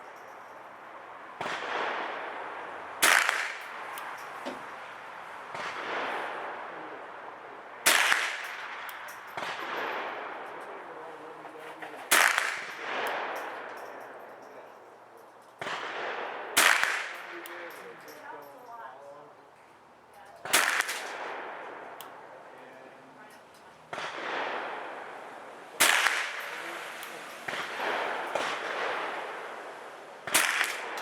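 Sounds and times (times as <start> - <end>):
quieter gunshots: 1.4 - 14.7, 15.6 - 18.2, 20.4 - 22.7, 23.9 - 31.0
rifle shots echoing: 1.4 - 14.8, 15.6 - 18.4, 20.4 - 22.7, 23.9 - 31.0.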